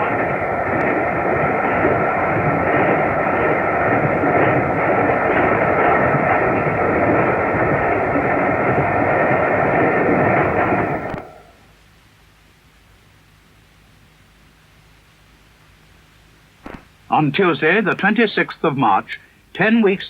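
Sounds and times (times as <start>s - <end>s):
train rumbling at speed: 0.0s - 11.5s
faint steady tones: 0.0s - 11.7s.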